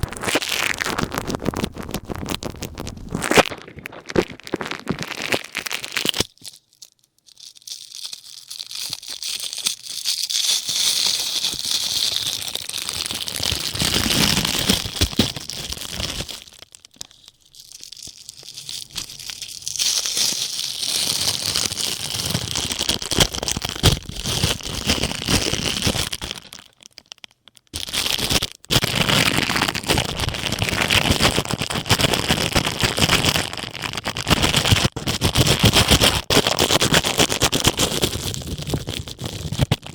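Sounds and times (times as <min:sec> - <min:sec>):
ear pick scratching plastic cap: 0:00.0 - 0:06.3, 0:34.3 - 0:39.9.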